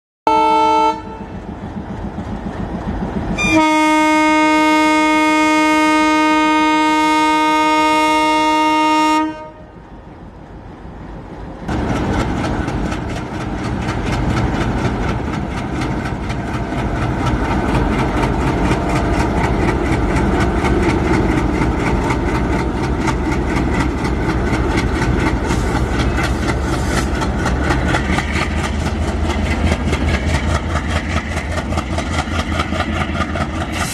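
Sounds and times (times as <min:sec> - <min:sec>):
locomotive horn: 0:00.3 - 0:01.4, 0:03.4 - 0:09.8
train engine noise: 0:00.3 - 0:33.9
wheels clattering on rails: 0:11.2 - 0:33.9.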